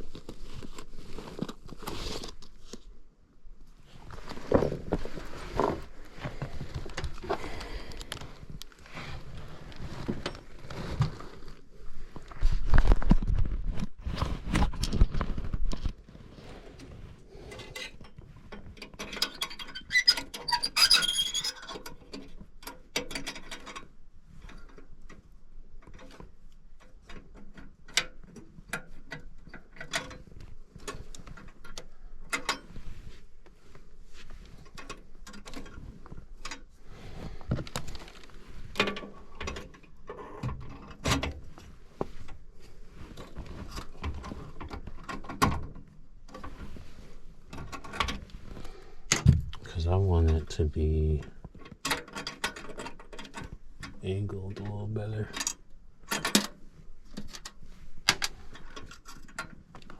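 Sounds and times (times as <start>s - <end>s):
heavy knocks: 49.2s - 49.7s.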